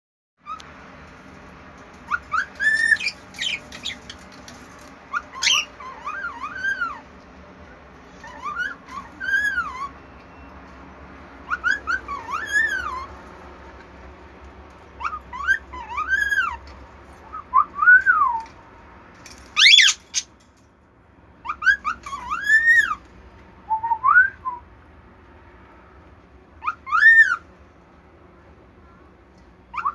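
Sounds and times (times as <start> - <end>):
pet bird whistling calls: 2.1 - 4.1, 5.1 - 7.0, 8.2 - 10.5, 11.4 - 13.1, 19.6 - 20.3, 26.6 - 27.4.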